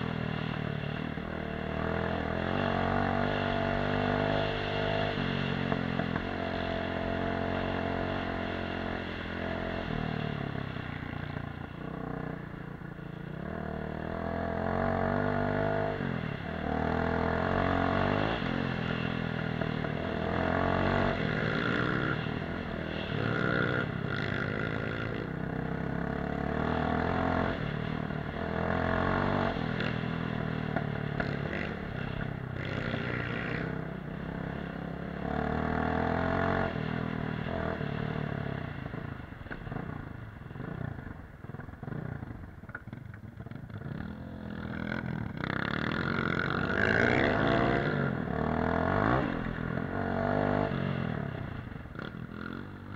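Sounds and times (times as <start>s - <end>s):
off-road motorcycle engine revving: 0.0s - 52.9s.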